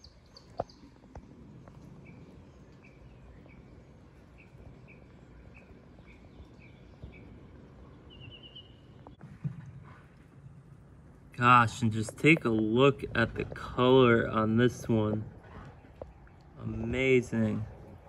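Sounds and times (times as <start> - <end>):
bird chirping: 0.0 - 9.3.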